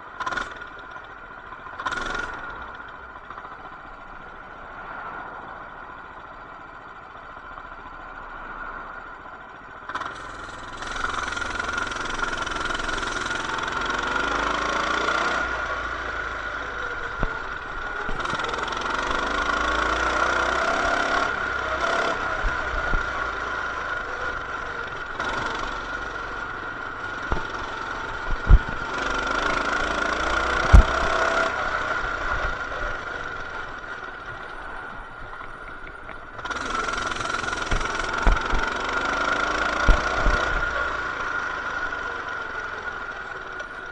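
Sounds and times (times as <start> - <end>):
mini bike engine revving: 0.2 - 1.0, 1.7 - 3.6, 9.9 - 43.9
sharp knocks: 27.2 - 31.5.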